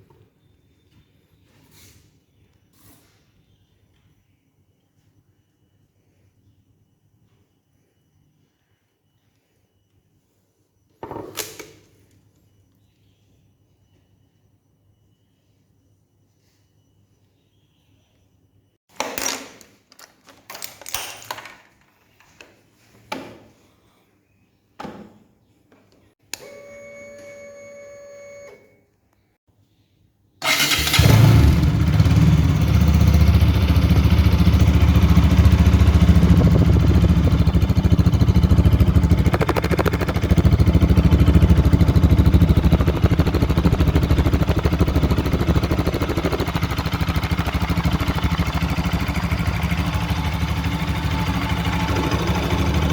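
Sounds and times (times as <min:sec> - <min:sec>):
motorcycle engine starting and running: 0:30.4 - 0:52.9.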